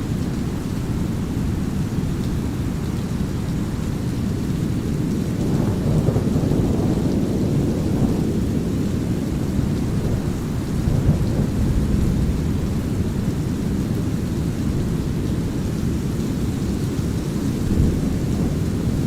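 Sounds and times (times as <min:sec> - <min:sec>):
light rain: 0:00.0 - 0:19.0
thunder rumbling: 0:04.3 - 0:19.0.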